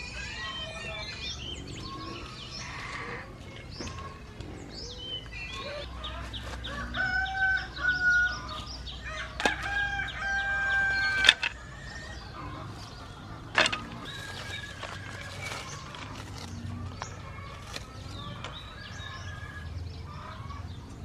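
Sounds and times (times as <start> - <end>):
rooster crowing: 5.6 - 15.5.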